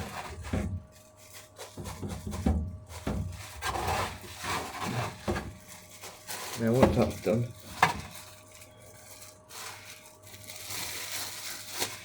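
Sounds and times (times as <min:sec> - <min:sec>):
hands knocking and rubbing chicken: 0:01.6 - 0:03.6.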